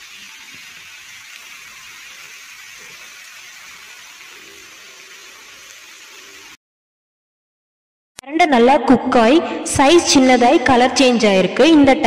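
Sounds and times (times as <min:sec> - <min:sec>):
stem pieces sizzling in hot oil: 0:00.0 - 0:06.6.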